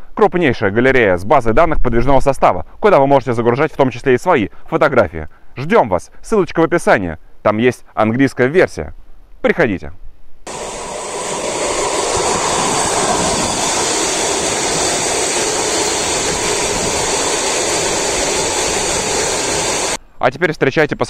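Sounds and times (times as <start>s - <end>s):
train wheel-on-rail noise: 10.5s - 20.0s.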